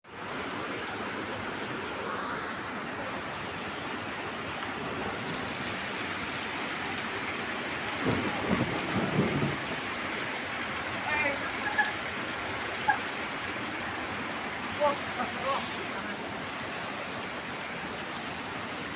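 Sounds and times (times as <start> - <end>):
heavy rain hissing: 0.0 - 18.9
low thumps: 8.0 - 9.8.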